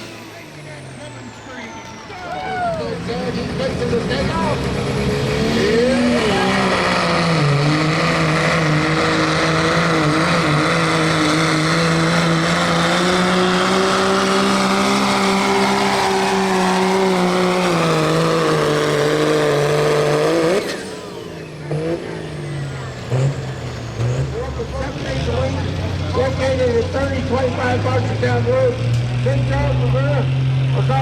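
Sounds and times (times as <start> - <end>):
diesel truck engine running hard: 0.0 - 31.0.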